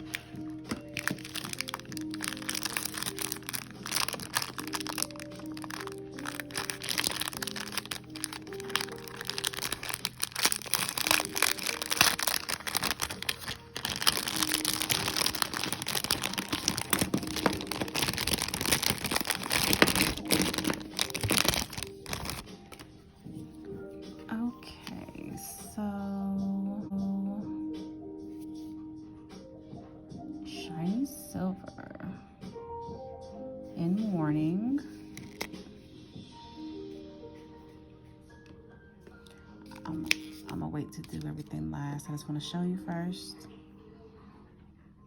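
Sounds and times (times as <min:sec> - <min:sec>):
packaging crinkling and crackling: 0:00.0 - 0:22.8, 0:35.1 - 0:35.5, 0:39.7 - 0:40.6
soft background music: 0:00.0 - 0:45.0.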